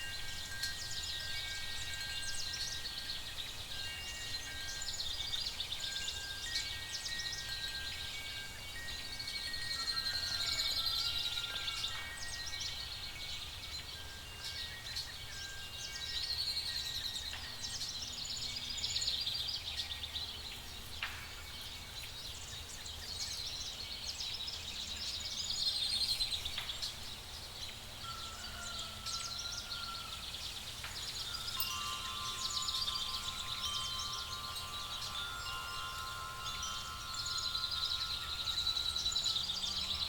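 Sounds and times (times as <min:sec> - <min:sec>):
pulsing high chirping chorus: 0:28.0 - 0:40.0.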